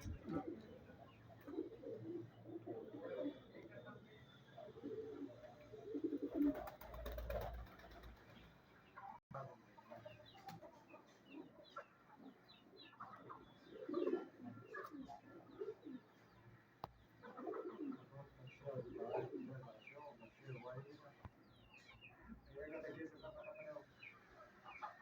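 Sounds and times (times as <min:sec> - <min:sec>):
pigeons cooing: 0:00.0 - 0:03.8, 0:04.6 - 0:08.1, 0:11.3 - 0:16.4, 0:17.0 - 0:19.9.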